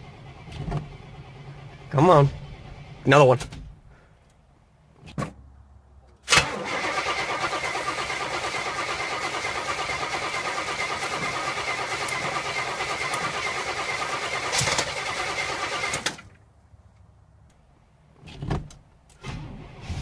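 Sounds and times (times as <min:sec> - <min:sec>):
engine cranking on starter: 0:00.0 - 0:03.1, 0:06.3 - 0:16.3.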